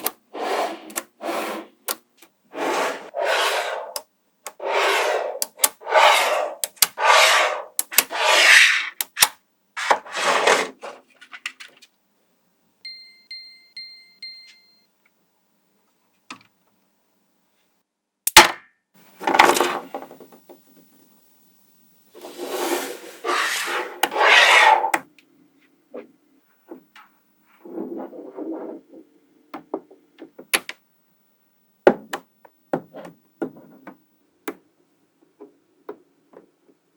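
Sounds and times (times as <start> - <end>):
magnetic balls scraping rattle: 2.6 - 8.9.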